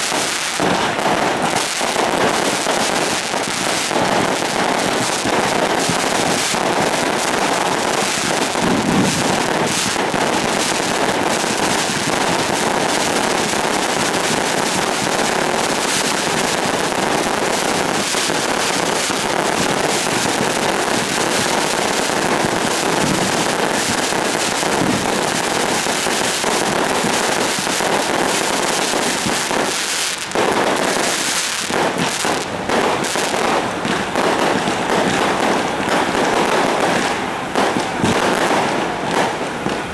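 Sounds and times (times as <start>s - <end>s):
fireworks crackling bangs: 0.0s - 39.9s
heavy firework thumps: 3.7s - 11.1s, 14.4s - 25.9s, 31.6s - 39.9s.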